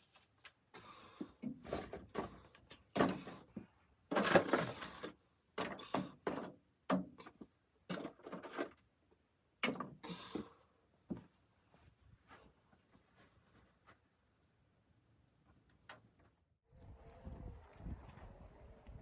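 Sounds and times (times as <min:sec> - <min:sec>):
objects knocking and rustling: 0:01.1 - 0:08.8.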